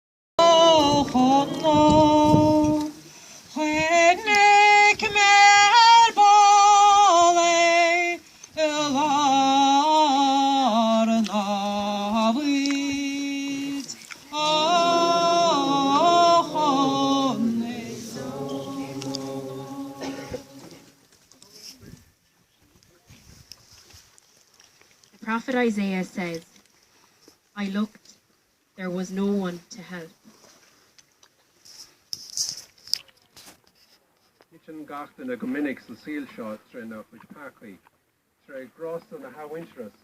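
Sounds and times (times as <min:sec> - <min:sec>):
woman singing unaccompanied: 0:00.4 - 0:21.0.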